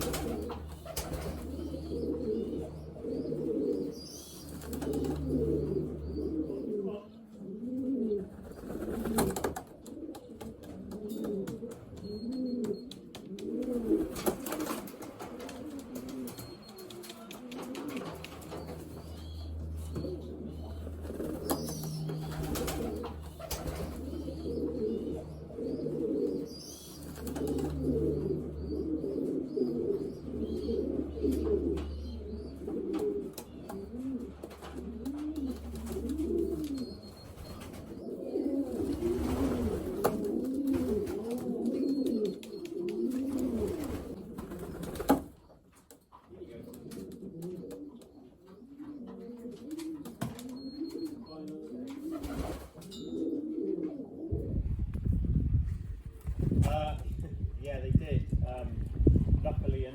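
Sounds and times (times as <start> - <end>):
low steady rumble: 0.0 - 6.8, 18.0 - 37.0, 54.3 - 59.9
pigeons cooing: 0.0 - 57.7.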